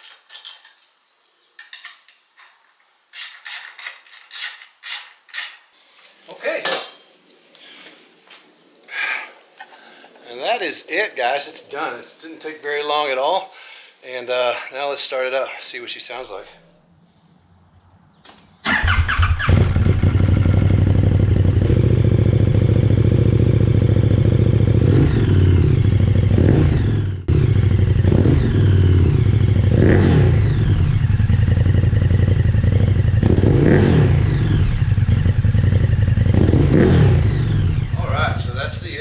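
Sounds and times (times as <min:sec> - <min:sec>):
motorcycle engine starting and revving: 0:18.1 - 0:39.0.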